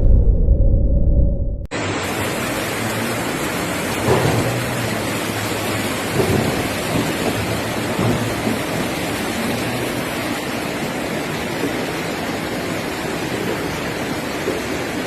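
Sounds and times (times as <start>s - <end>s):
low rumble: 0.0s - 2.1s
rush of water in heavy storm: 1.7s - 15.0s.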